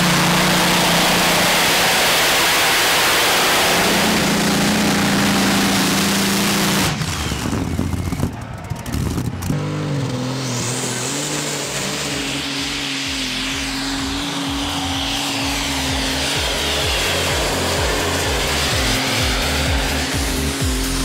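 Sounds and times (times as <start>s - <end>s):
tractor engines revving hard: 0.0s - 21.0s.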